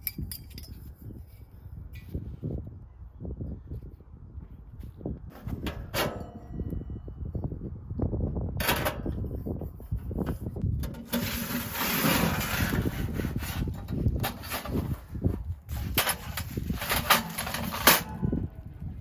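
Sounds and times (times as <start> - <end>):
rustling or scraping: 8.6 - 18.6.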